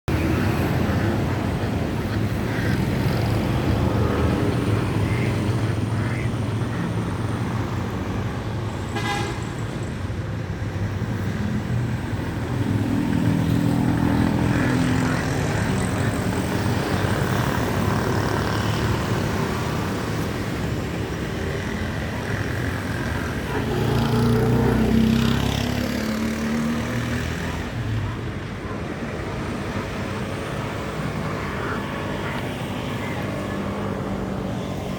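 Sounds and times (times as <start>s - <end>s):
road traffic rumble: 0.0s - 34.9s
vehicle engine passing: 21.6s - 27.9s.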